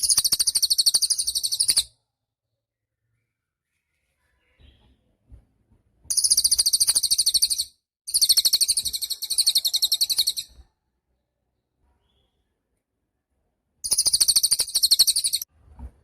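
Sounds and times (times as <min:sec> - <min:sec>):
songbird trilling: 0:00.0 - 0:01.9, 0:06.1 - 0:10.5, 0:13.8 - 0:15.4.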